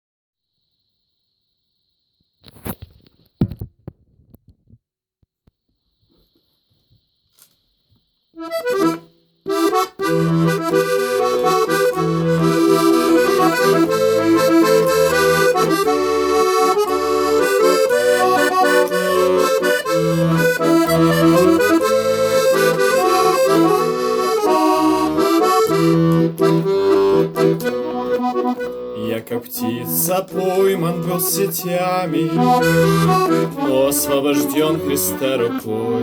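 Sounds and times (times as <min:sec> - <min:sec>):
accordion playing: 0:08.4 - 0:36.0.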